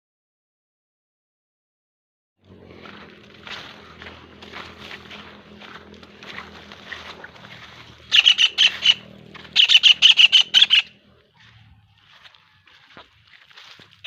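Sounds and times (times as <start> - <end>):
bird squawking harshly: 8.0 - 11.0.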